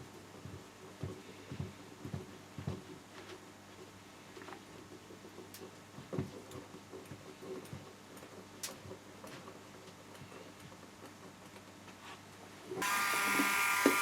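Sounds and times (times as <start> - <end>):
small power tool motor running: 12.8 - 14.0.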